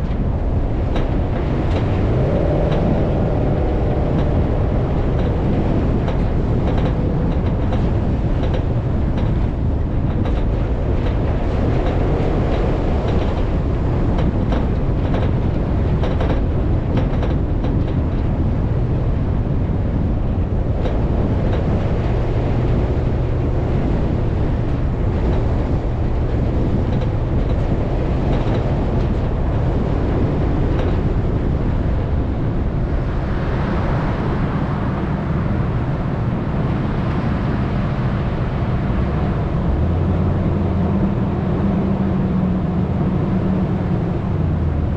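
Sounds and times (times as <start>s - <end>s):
rattles and knocks: 0.0s - 34.0s
vehicle engine rumble: 0.0s - 44.9s.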